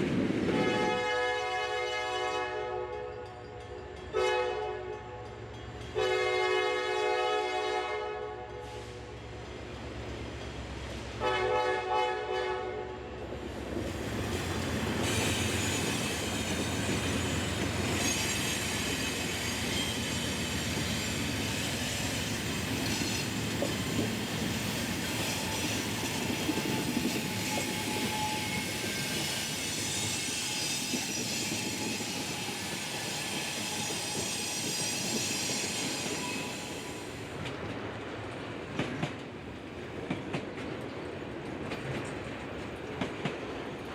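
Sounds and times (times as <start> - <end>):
train horn blast: 0.5 - 3.2, 4.1 - 5.2, 6.0 - 9.1, 11.2 - 13.2
train wheels rumbling and clattering: 13.2 - 43.9
high-pitched wheel squeal: 25.1 - 37.0.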